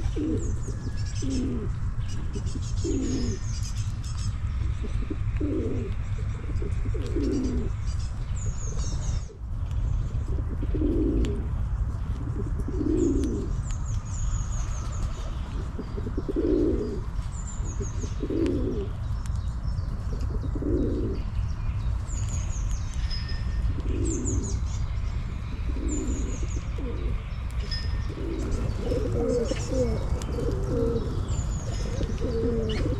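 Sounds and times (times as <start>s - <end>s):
pigeons cooing: 0.0s - 19.0s, 19.8s - 21.4s, 23.6s - 32.9s
steady low rumble: 0.0s - 32.9s
small bird chirping: 12.7s - 32.9s.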